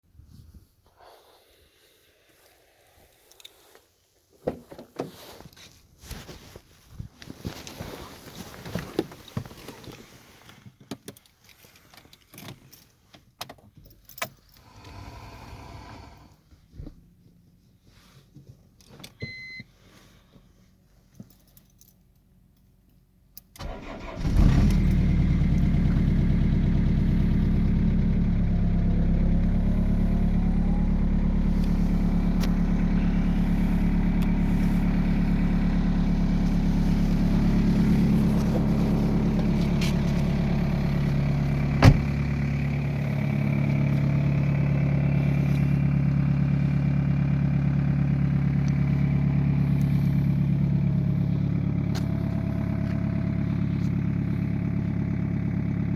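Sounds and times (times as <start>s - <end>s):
diesel engine cranking and idling: 14.6s - 16.4s, 23.6s - 55.9s.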